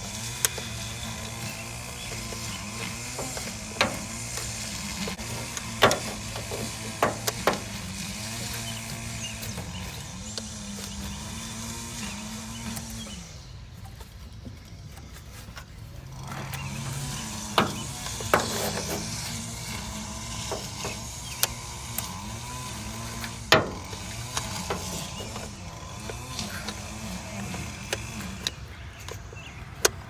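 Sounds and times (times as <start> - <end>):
metal tools clinking on engine parts: 0.0 - 13.1, 13.8 - 30.0
low wavering motor hum: 0.0 - 30.0.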